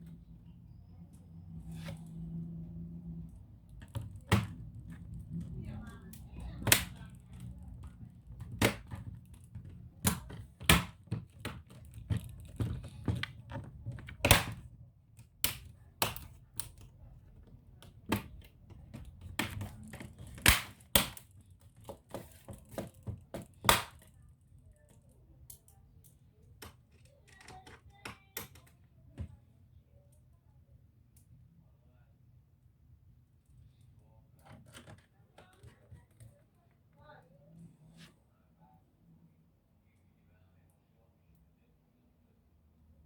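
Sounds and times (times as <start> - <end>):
clicks of laptop parts and tools: 6.6 - 17.0, 17.8 - 24.2, 25.5 - 29.3.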